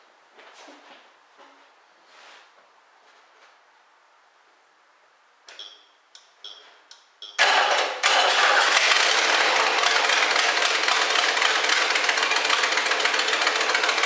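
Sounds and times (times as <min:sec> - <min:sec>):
car engine starting and running: 0:07.4 - 0:14.0.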